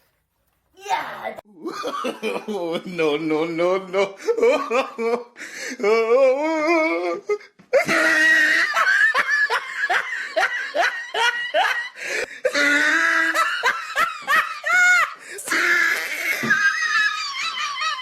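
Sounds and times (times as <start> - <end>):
person laughing hard: 4.1 - 5.4, 6.2 - 18.0
wavering vocal sound: 5.8 - 7.4.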